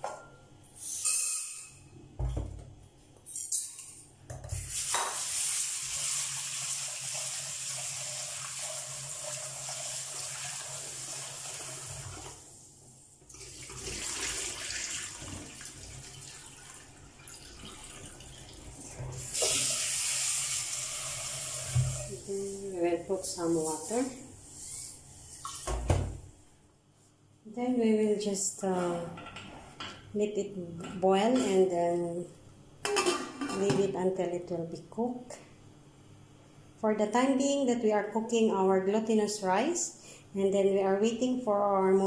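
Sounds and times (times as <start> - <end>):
tap running water into a pot: 4.6 - 12.4, 19.2 - 22.1.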